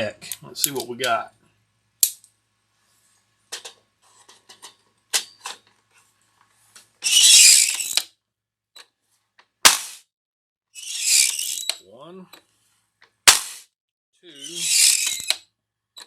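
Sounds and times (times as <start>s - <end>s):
rasping slide: 10.8s - 11.8s, 14.4s - 15.4s.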